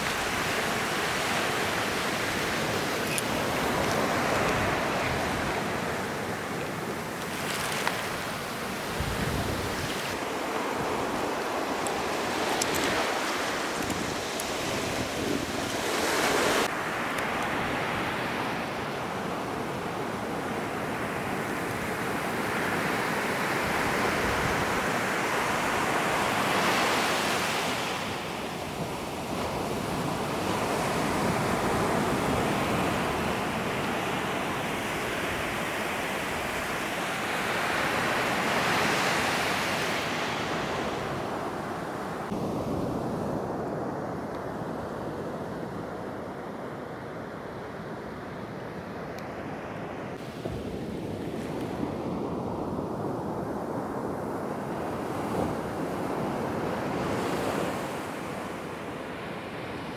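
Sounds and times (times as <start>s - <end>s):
wind on microphone: 0.0s - 16.7s
ocean surf breaking: 0.0s - 44.2s.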